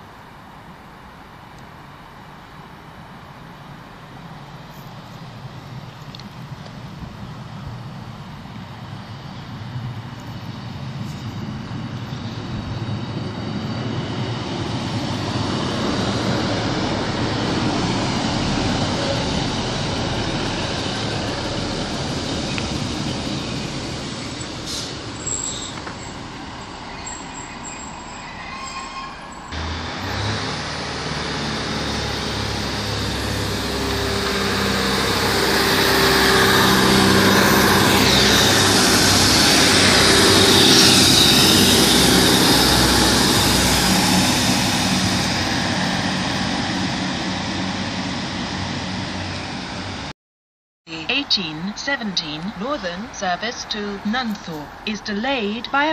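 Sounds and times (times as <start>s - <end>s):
train wheels rumbling on rails: 3.0s - 50.1s
diesel engine: 4.2s - 28.1s, 29.5s - 50.1s
high squeal of wheels: 23.5s - 29.6s.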